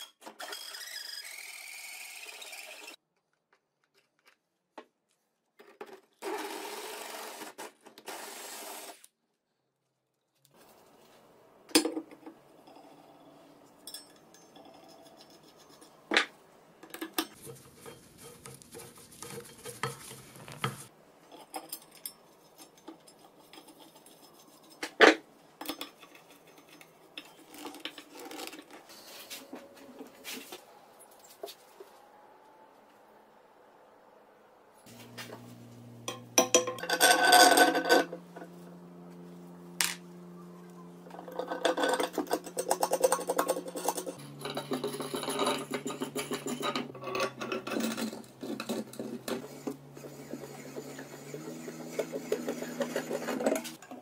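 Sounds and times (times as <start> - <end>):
steady workshop noise: 0.0 - 3.0, 5.6 - 9.1, 10.4 - 33.1, 34.8 - 54.0
rubbing and scraping: 14.6 - 16.2, 17.3 - 21.5, 41.0 - 53.8
metal clinks and knocks: 36.0 - 38.5, 41.1 - 50.0.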